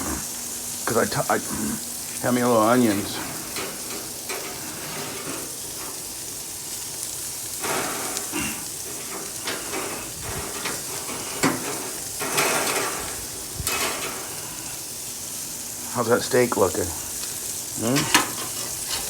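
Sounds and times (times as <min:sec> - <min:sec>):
meat sizzling on a grill: 0:00.0 - 0:19.0
scrapes and sharp knocks: 0:09.0 - 0:12.9.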